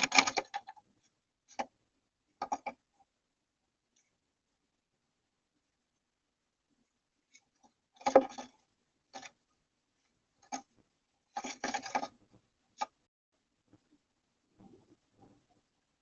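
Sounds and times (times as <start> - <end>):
bird scratching in wooden box: 11.3 - 12.2.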